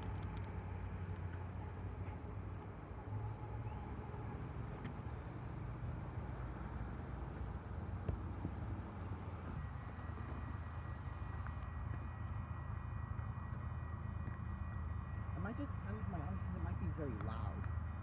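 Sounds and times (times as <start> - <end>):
freight train rumble: 7.7 - 18.0.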